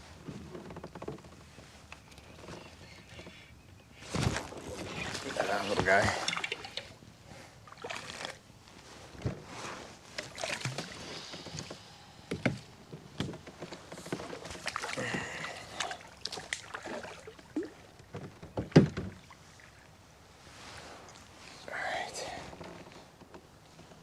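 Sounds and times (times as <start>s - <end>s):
water splashing and dripping: 4.2s - 7.0s, 7.7s - 8.4s, 10.2s - 11.0s, 14.2s - 18.0s.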